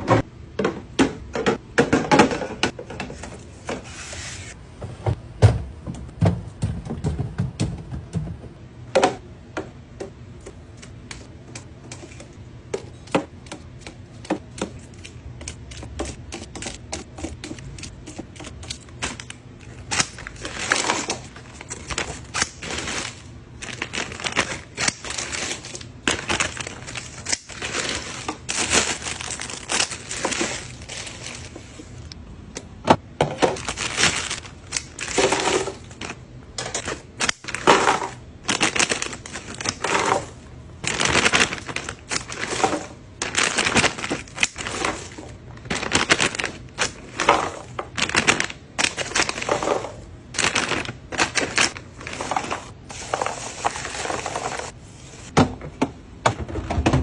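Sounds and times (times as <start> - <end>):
packaging rustling: 17.5 - 32.1, 33.4 - 54.8.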